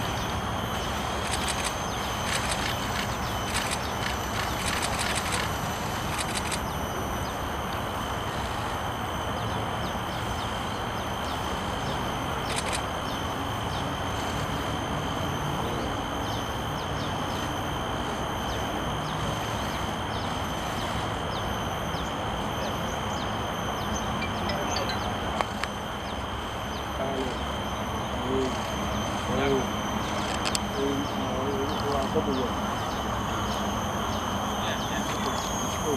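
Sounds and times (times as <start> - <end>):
high-pitched whine: 0.0 - 35.9.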